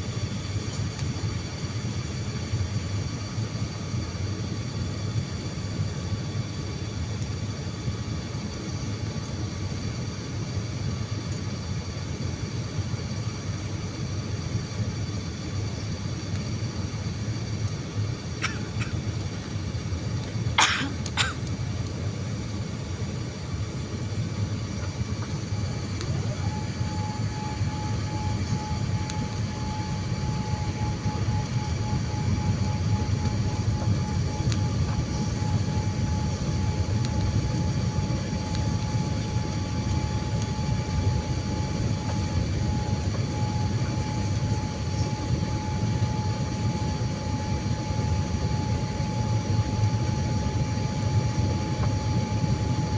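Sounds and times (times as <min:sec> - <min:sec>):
airliner engine rumble in cabin: 0:00.0 - 0:52.9
high whine: 0:14.8 - 0:52.9.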